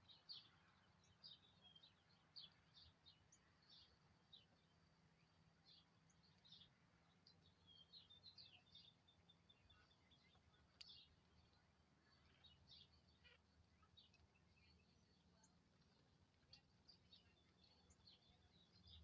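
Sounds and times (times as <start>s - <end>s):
small songbirds chirping: 0.0s - 19.0s.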